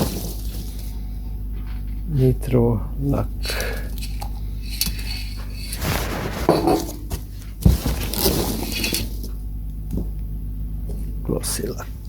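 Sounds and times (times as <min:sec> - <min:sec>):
low electrical hum: 0:00.0 - 0:12.0
items thumping down: 0:05.8 - 0:09.2.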